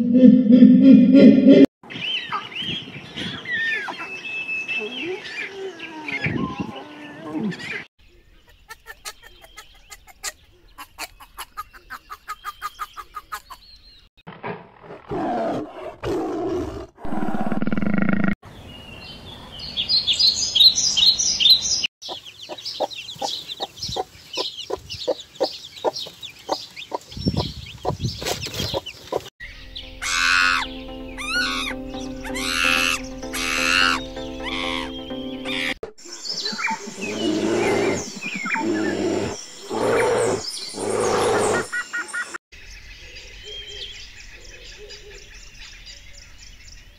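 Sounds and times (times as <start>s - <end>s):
high chirping: 19.9s - 42.3s
chickens clucking and peeping: 22.0s - 29.3s.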